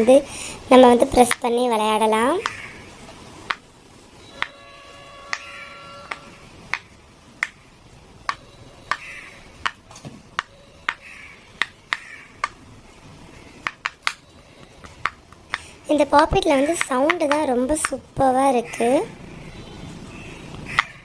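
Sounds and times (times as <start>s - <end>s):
fidget toy bubbles popping: 16.3s - 18.0s.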